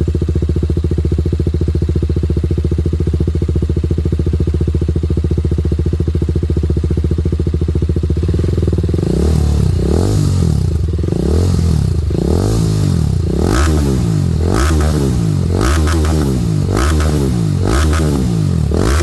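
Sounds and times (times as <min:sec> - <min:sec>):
motorcycle engine revving: 0:04.4 - 0:19.0.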